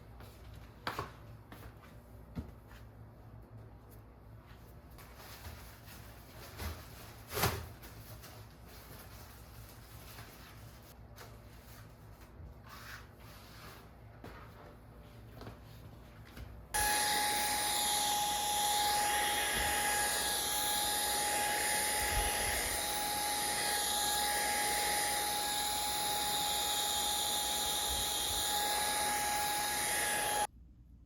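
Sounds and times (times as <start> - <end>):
electric fan motor whining: 16.8 - 30.5.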